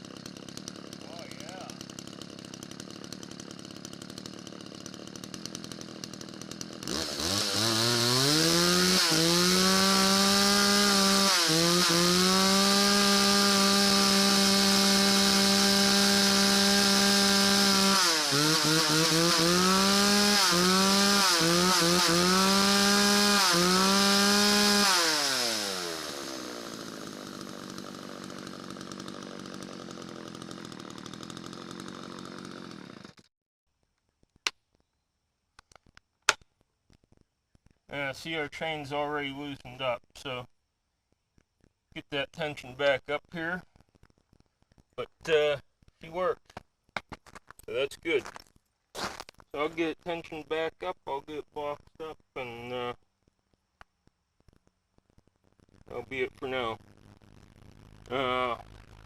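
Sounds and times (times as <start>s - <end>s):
chainsaw revving: 0.0s - 33.3s, 58.0s - 58.8s.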